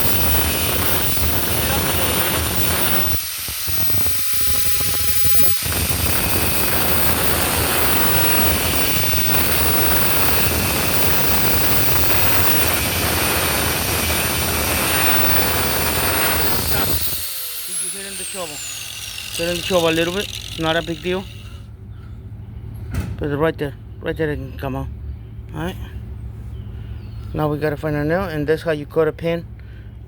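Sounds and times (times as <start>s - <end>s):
angle grinder cutting steel: 0.0s - 21.6s.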